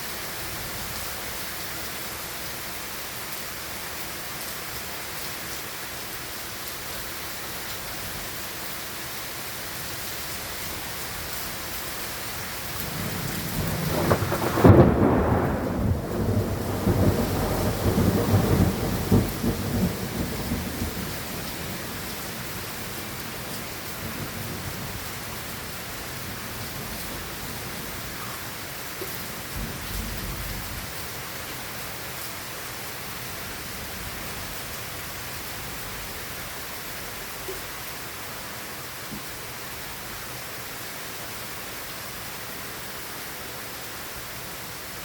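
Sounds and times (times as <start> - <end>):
steady rain: 0.0 - 45.0
thunder rumbling: 12.6 - 22.6, 24.0 - 31.0.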